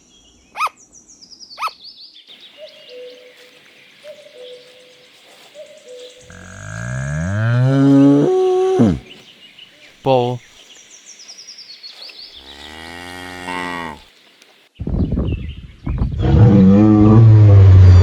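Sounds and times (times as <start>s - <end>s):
long low rising call: 6.3s - 9.2s, 16.2s - 18.0s.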